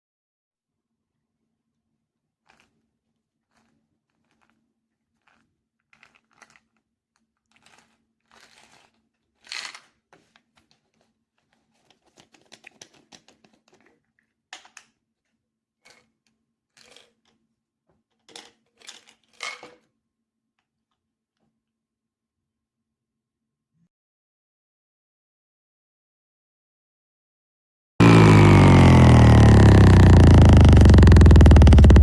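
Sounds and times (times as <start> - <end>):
small objects rustling and clicking: 2.4 - 17.4, 18.1 - 19.9.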